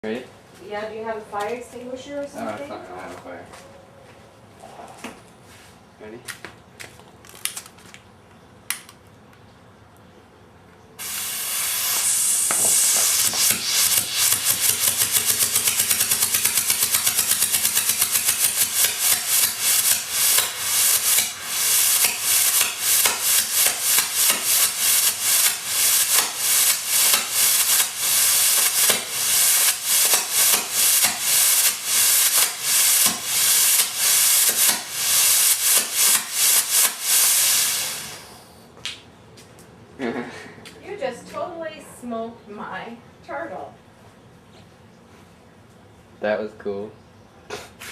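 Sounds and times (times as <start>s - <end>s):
rocket motor hissing and chuffing: 11.0s - 38.6s.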